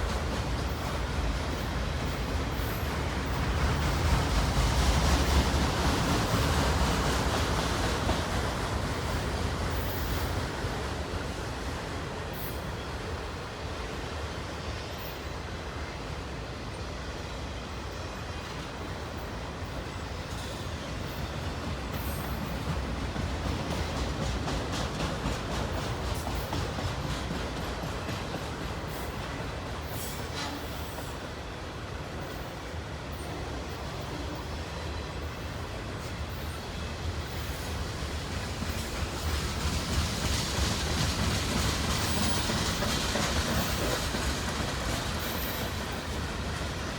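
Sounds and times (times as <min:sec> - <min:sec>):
freight train rumbling past: 0:00.0 - 0:46.9
wheels clicking over rail joints: 0:37.2 - 0:46.9.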